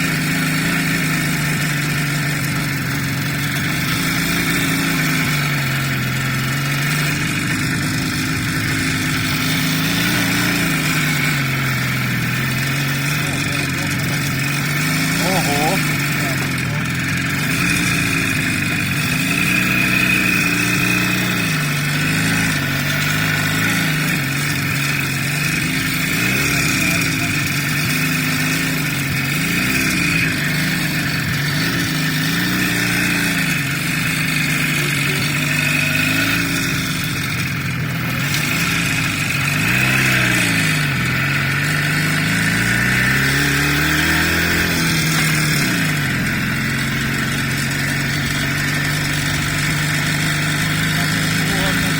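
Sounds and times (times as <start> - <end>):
vehicle engine running: 0.0 - 51.9.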